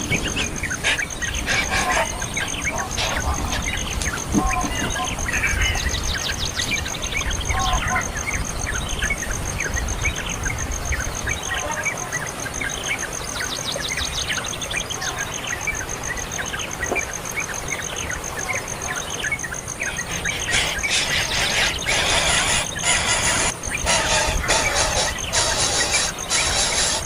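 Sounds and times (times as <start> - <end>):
harsh rasping bird call: 0.0 - 5.8, 20.0 - 27.0
birds chirping: 0.0 - 27.0
high pulsing bird trill: 17.8 - 27.0.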